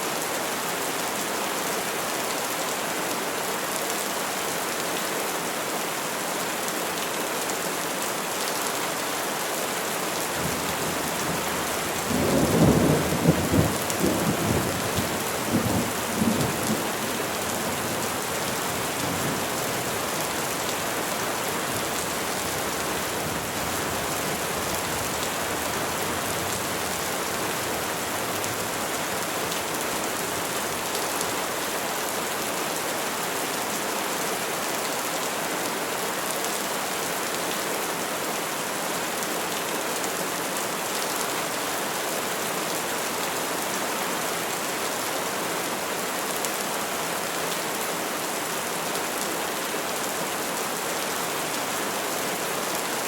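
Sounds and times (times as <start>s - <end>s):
rain falling on trees: 0.0s - 53.0s.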